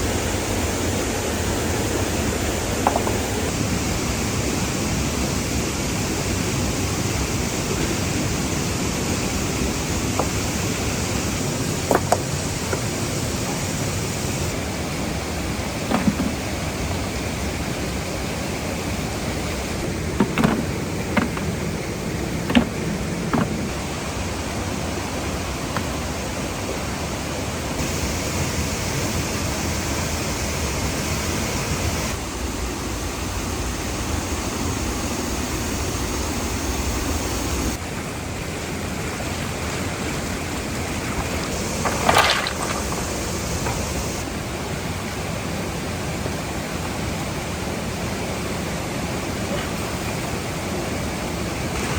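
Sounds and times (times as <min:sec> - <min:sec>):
waterfall rushing: 0:00.0 - 0:32.2, 0:37.4 - 0:51.9
short knocks: 0:19.9 - 0:21.8, 0:22.4 - 0:23.7.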